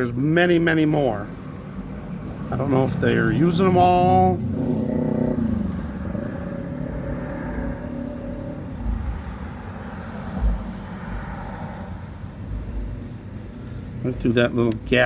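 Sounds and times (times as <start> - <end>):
truck engines: 0.0 - 15.0
heavy machinery drone: 3.3 - 11.2
dull low thumps: 5.3 - 13.2.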